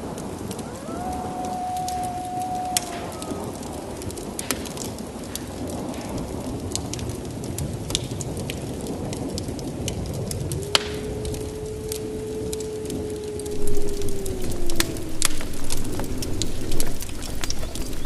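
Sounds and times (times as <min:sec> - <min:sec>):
heavy rain falling: 0:00.0 - 0:18.0
wood fire crackling: 0:00.0 - 0:18.0.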